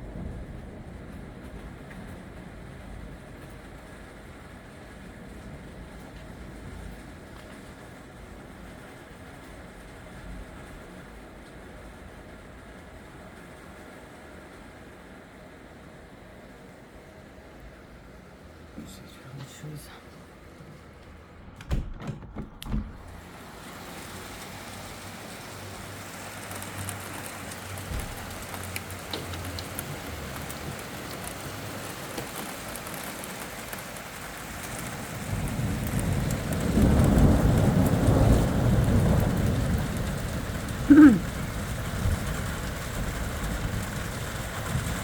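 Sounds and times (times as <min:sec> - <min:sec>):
rain hiss: 0:00.0 - 0:21.1, 0:23.0 - 0:45.0
thunder rumbling: 0:20.8 - 0:33.7, 0:34.6 - 0:45.0
short knocks: 0:21.5 - 0:23.2.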